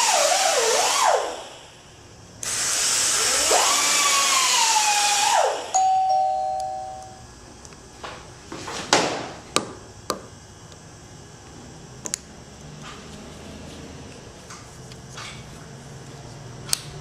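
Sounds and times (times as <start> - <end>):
low steady hum: 5.7 - 8.4.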